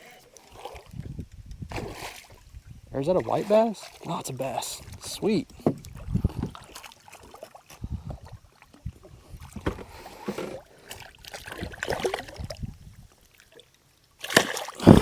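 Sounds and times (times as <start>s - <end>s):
knocks on boat: 5.6s - 6.5s, 9.6s - 10.6s.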